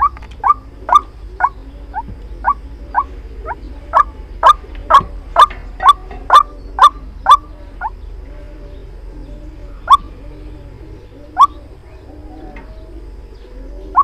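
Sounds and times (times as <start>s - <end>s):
waterhen calling: 0.0s - 8.9s, 9.6s - 14.0s.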